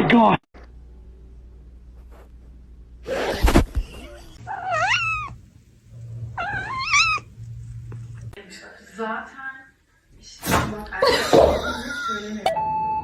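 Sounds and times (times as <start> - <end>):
cat meowing: 4.4 - 5.4, 6.3 - 7.3.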